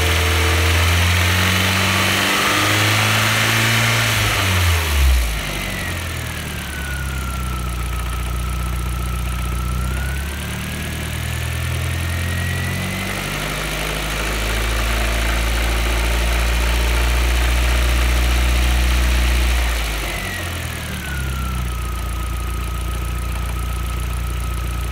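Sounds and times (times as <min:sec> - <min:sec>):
thin whine: 0:19.9 - 0:24.9.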